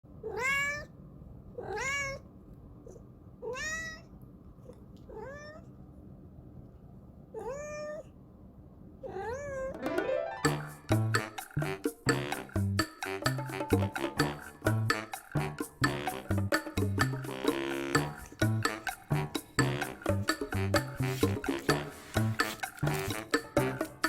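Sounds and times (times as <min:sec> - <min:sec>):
cat meowing: 0:00.2 - 0:01.0, 0:01.6 - 0:02.3, 0:02.9 - 0:04.1, 0:05.1 - 0:05.7, 0:07.4 - 0:08.1, 0:09.0 - 0:09.8
rhythmic music: 0:09.8 - 0:24.0.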